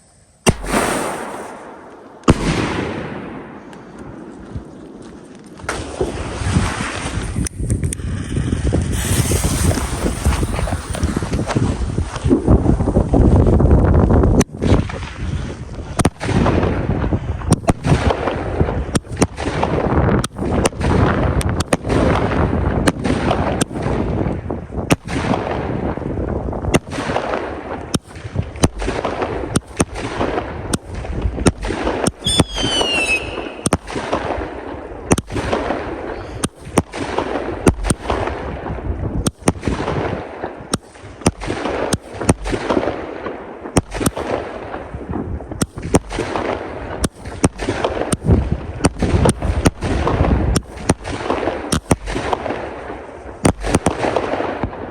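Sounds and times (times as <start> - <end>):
fireworks crackle: 0.0 - 23.8, 25.3 - 54.9
fireworks banging: 0.5 - 13.3, 27.9 - 54.9
falling whistle: 32.3 - 33.6.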